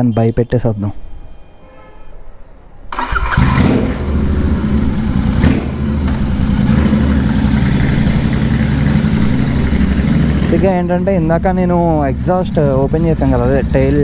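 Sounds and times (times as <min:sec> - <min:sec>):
motorcycle engine running loud: 0:03.0 - 0:14.0.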